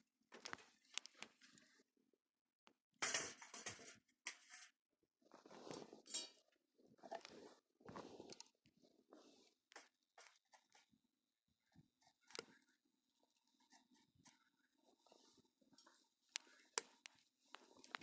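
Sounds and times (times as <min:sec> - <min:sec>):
rustling and crackling of fuel: 0:15.0 - 0:18.0.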